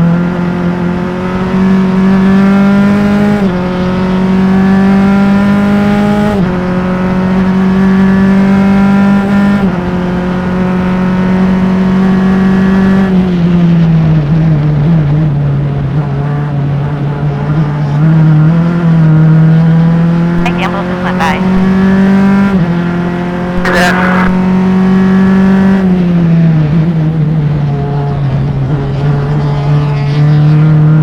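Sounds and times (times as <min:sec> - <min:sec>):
race car engine at high revs: 0:00.0 - 0:31.0.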